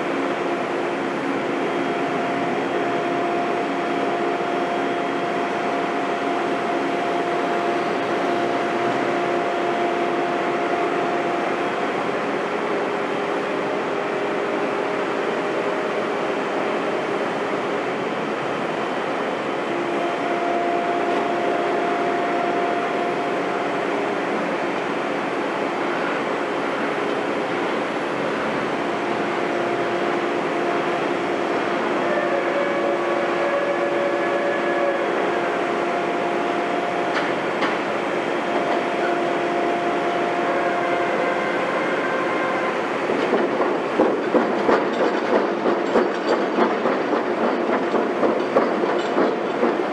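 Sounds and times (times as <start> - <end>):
heavy machinery running: 0.0 - 49.9.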